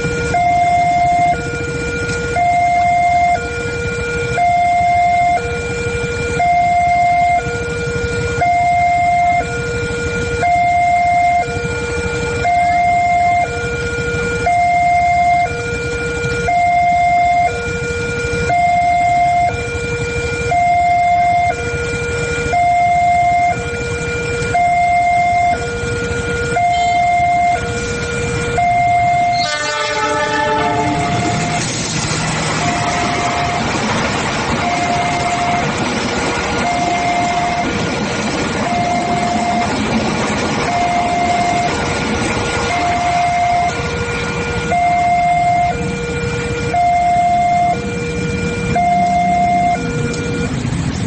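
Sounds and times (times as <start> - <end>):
two-tone crossing alarm: 0.0 - 51.0
horn: 29.4 - 31.5
low rumble: 30.0 - 46.3.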